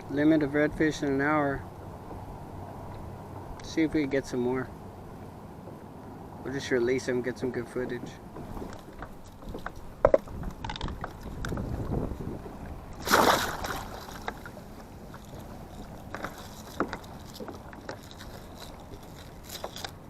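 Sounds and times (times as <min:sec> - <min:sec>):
knocks and clatter in a boat: 0:01.9 - 0:02.3, 0:08.0 - 0:20.0.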